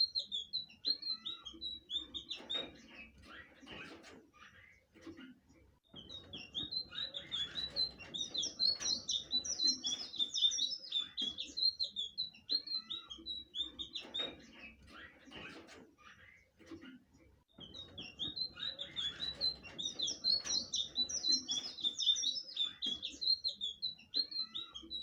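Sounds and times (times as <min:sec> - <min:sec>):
bird singing high chirps: 0:00.0 - 0:03.5, 0:05.9 - 0:15.2, 0:17.5 - 0:25.0.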